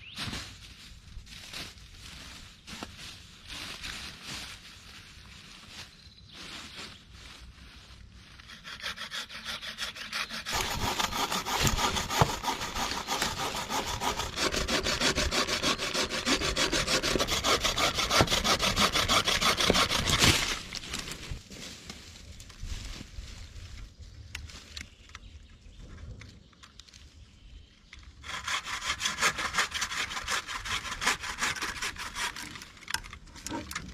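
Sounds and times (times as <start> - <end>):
hand saw cutting wood: 8.4 - 20.8, 28.2 - 33.9.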